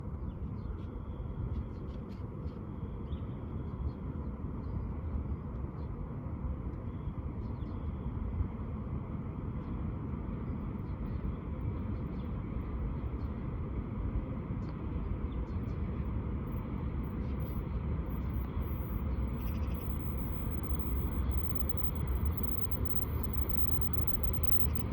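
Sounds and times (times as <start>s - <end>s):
distant freight train rumble: 15.8s - 24.9s
faint high chirps: 17.4s - 24.9s.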